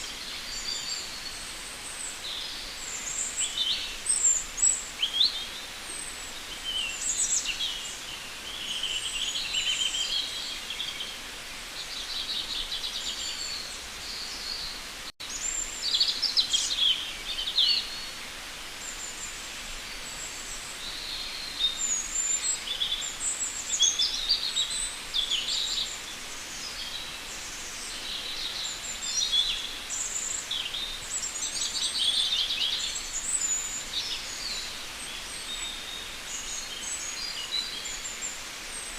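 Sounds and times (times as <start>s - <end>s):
faint steady hiss: 0.0s - 38.9s
songbirds singing: 0.0s - 38.9s.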